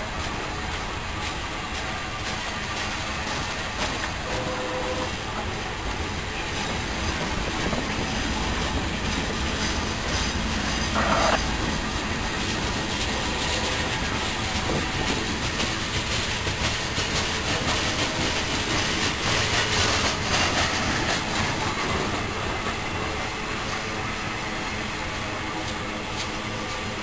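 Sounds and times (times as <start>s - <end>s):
train wheels clacking over rails: 0.0s - 27.0s
brief wheel screech: 10.6s - 11.4s.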